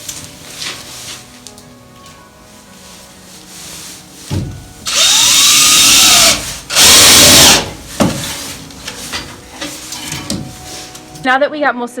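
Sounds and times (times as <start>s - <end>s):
rap on a wooden board: 4.3s - 10.5s
power drill driving screws: 4.9s - 7.8s.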